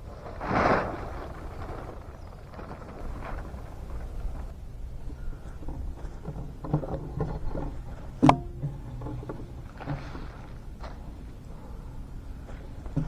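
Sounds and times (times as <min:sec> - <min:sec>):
objects knocking and clunking: 0:04.9 - 0:11.4.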